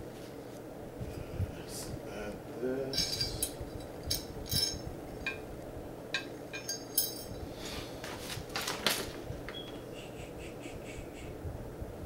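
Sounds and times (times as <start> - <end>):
metal parts clinking: 2.9 - 5.4, 6.2 - 7.4.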